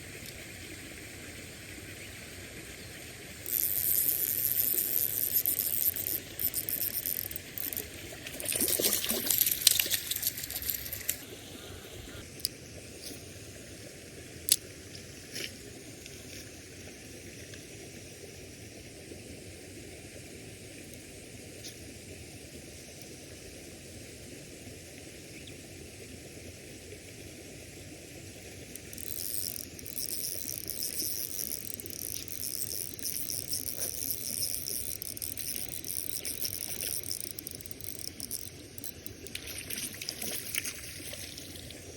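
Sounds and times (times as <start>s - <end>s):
running water hiss: 0.0s - 41.9s
fishing reel whirring: 3.0s - 11.3s, 28.6s - 41.9s.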